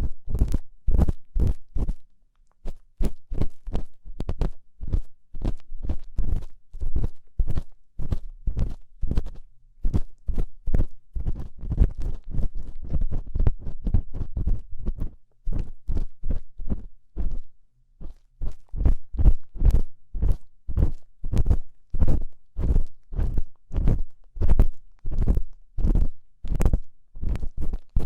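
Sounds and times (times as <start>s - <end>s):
ear pick scraping microphone: 18.0s - 28.0s.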